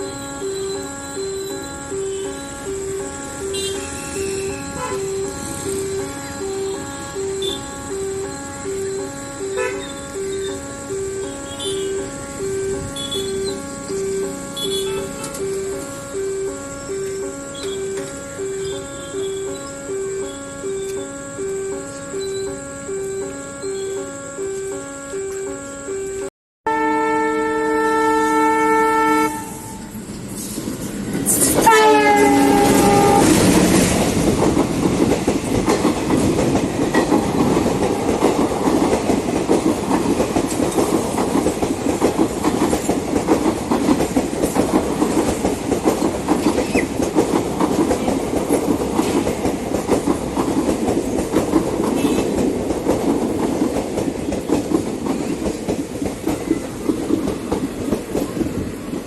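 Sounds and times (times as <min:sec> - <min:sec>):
train wheels clattering over rails: 0:00.0 - 0:23.9, 0:29.8 - 0:59.0
train horn blaring: 0:00.0 - 0:30.0, 0:31.3 - 0:35.1, 0:44.4 - 0:58.4.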